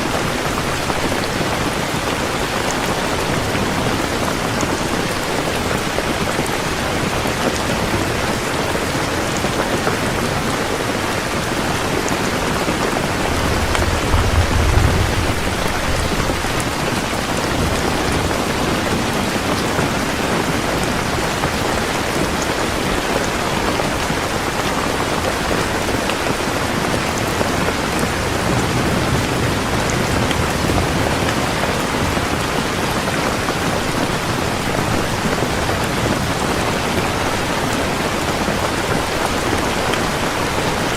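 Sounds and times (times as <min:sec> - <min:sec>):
heavy rain falling: 0:00.0 - 0:40.9
thunder rumbling: 0:10.4 - 0:22.2.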